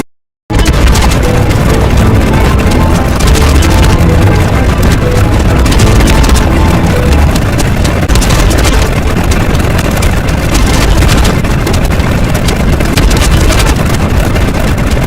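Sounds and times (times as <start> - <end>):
loud low rumbling noise: 0.5 - 15.0.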